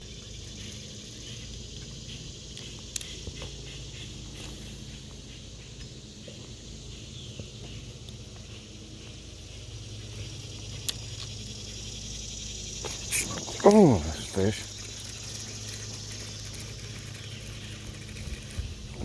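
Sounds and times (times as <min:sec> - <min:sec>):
high hiss: 0:12.7 - 0:15.6.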